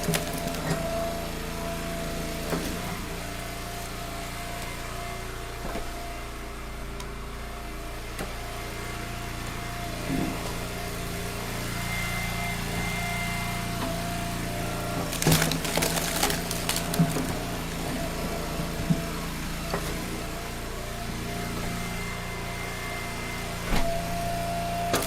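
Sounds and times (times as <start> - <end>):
wood splitting and clattering: 0.0 - 1.4, 14.8 - 20.2
log splitter engine running: 0.0 - 25.0.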